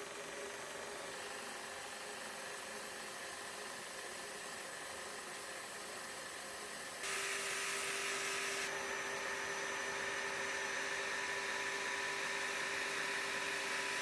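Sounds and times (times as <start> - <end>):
belt grinder running: 7.0 - 14.0.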